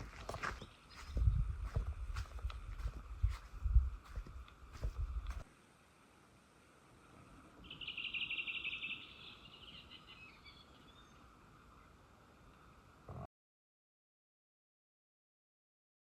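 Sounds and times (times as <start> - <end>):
faint outdoor hiss: 0.0 - 13.3
songbird trilling: 7.6 - 11.2.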